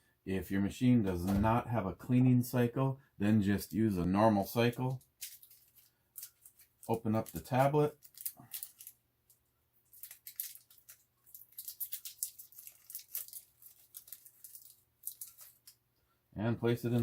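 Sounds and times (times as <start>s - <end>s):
wrapper crinkling and tearing: 5.2s - 9.0s, 9.8s - 15.8s.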